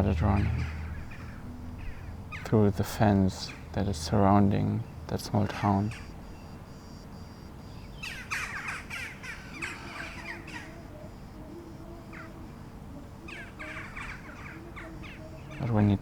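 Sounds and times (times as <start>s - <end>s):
faint steady hum: 0.0s - 16.0s
harsh bird calls: 0.0s - 16.0s.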